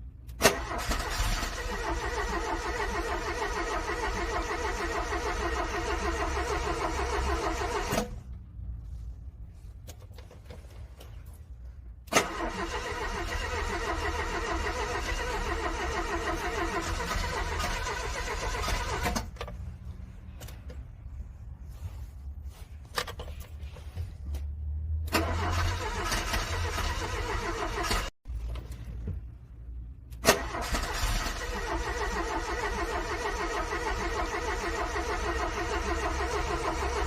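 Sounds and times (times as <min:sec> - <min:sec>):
car engine cranking: 0:00.2 - 0:08.4, 0:12.0 - 0:20.9, 0:25.0 - 0:29.3, 0:30.1 - 0:37.0.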